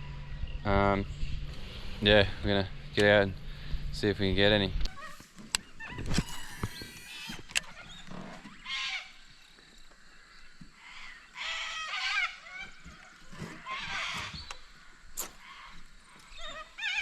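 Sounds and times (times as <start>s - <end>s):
birds squawking: 4.8s - 17.0s.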